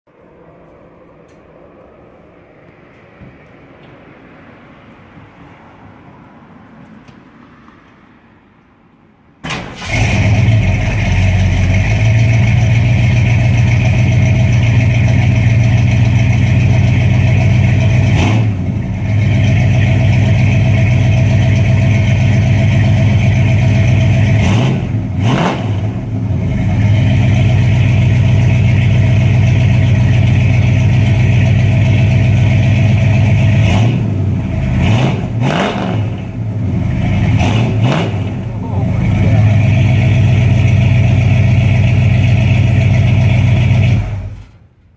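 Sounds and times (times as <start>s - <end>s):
engine starting: 9.4s - 12.0s
engine throttle blips: 9.4s - 44.7s
deep loud engine exhaust: 9.6s - 44.6s.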